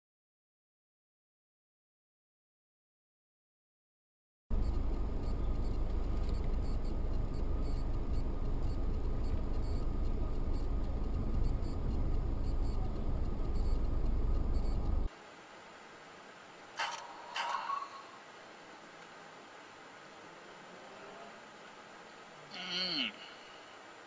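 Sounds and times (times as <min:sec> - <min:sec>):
car engine and road noise: 0:04.5 - 0:17.4.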